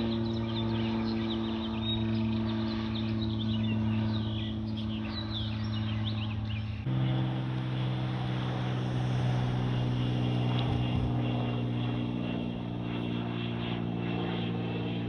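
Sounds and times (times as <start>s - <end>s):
birds chirping: 0.0s - 8.4s
airplane engine drone: 0.0s - 15.0s.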